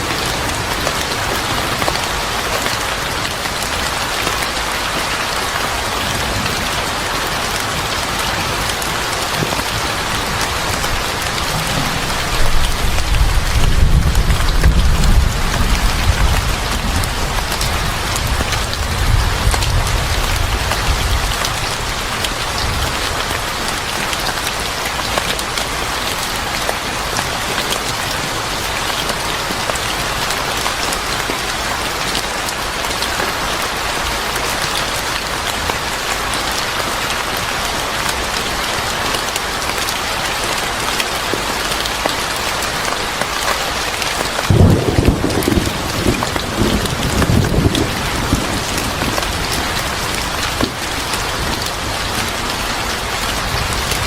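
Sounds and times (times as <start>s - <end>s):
heavy rain pattering: 0.0s - 54.0s
low rumble of thunder: 10.7s - 23.0s, 44.5s - 51.0s.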